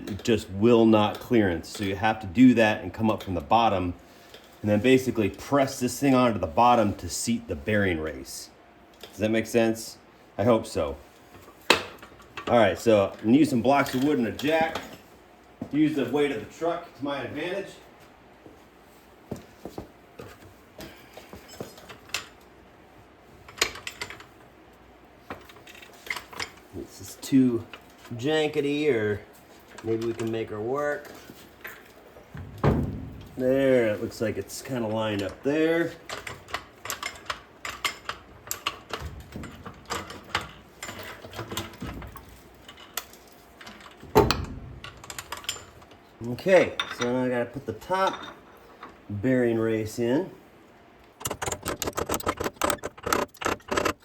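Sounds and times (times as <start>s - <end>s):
dull knocks: 32.4s - 33.3s
metal tools clinking and knocking: 34.9s - 46.0s, 46.6s - 49.0s.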